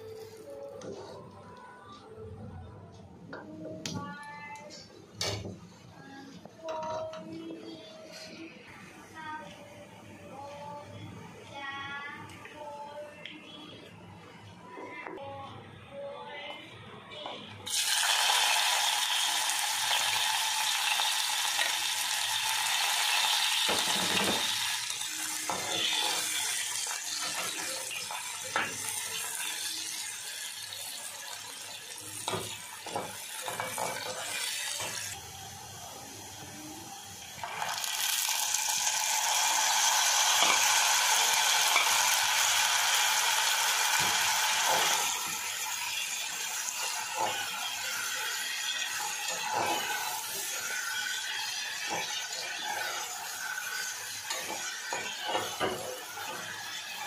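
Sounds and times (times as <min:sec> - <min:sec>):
onions sizzling in oil: 0:17.7 - 0:57.0
spatula scraping a pot: 0:47.2 - 0:57.0.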